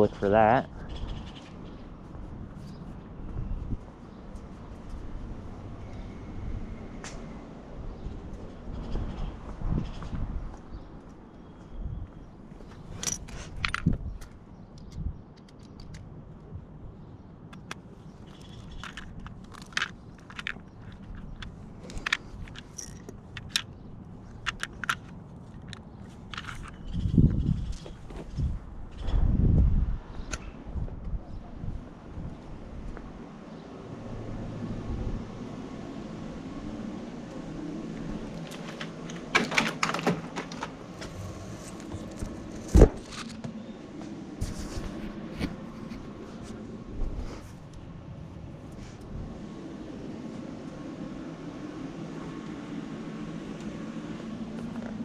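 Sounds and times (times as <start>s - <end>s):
metal hardware clinking and rattling: 13.0s - 14.0s, 18.4s - 23.7s
metal hardware clattering: 38.5s - 40.8s.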